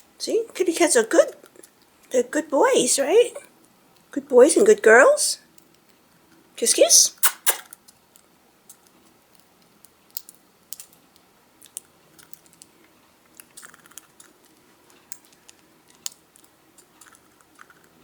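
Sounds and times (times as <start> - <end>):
budgie beak clicking: 7.2 - 7.8.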